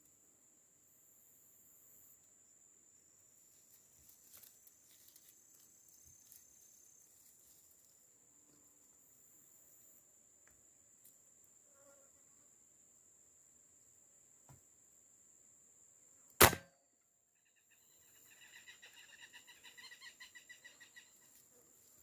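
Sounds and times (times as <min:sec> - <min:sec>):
insect trilling: 0:17.5 - 0:21.4.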